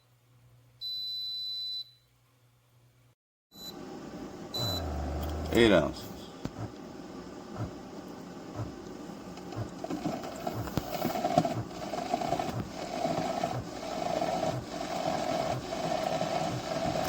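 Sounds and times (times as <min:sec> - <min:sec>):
coffee maker pump pulsing: 0:04.5 - 0:06.8, 0:08.5 - 0:17.0.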